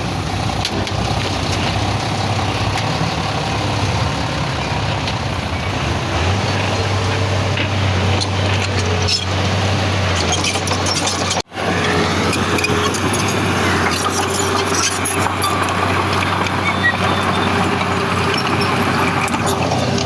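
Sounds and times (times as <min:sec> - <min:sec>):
heavy diesel engine drone: 0:00.0 - 0:20.0.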